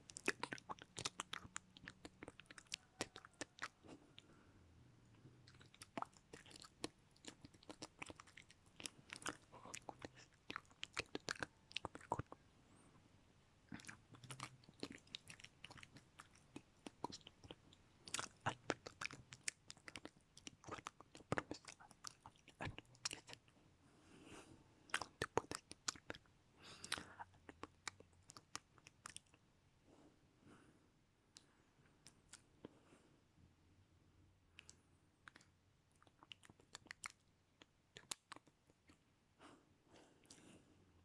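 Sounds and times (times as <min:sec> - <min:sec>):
wet mouth clicks and smacks: 0:00.0 - 0:03.9, 0:05.5 - 0:12.4, 0:13.7 - 0:23.5, 0:24.9 - 0:29.4, 0:31.4 - 0:32.4, 0:34.6 - 0:39.0.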